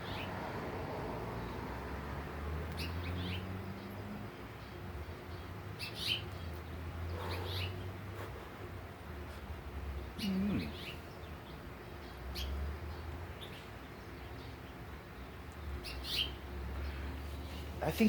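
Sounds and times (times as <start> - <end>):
finches chirping: 5.4 - 7.9, 10.0 - 18.0.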